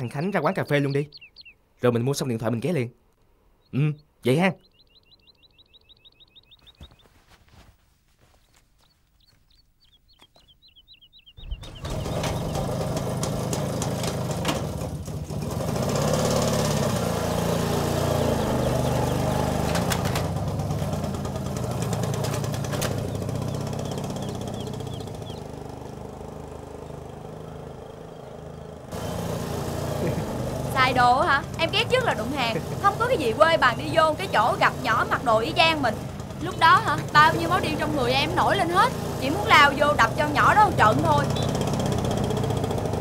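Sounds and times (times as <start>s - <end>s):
faint bird chirps: 0.0s - 7.4s, 8.2s - 12.8s, 23.0s - 25.6s, 31.7s - 41.7s
car engine running: 9.2s - 43.0s.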